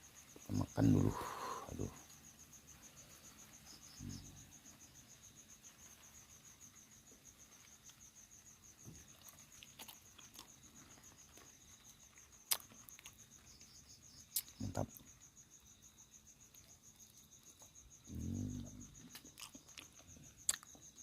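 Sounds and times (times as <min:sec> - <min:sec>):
cricket chirping: 0:00.0 - 0:21.0.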